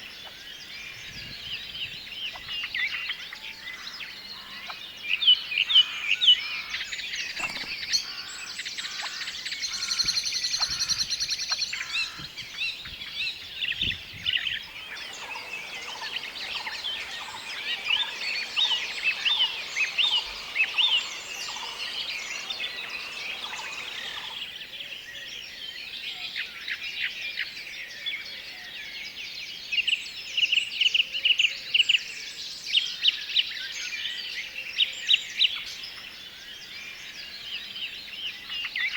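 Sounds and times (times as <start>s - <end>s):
loud sharp bird chirps: 5.8s - 12.4s, 13.8s - 24.4s
birds chirping and whistling: 7.0s - 24.5s
fast high bird trill: 14.6s - 24.4s.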